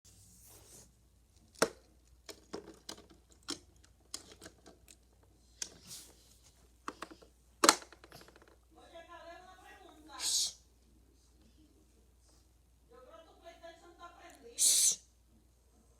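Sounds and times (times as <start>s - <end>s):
toy cars clicking and knocking: 1.4s - 5.8s, 6.9s - 8.6s.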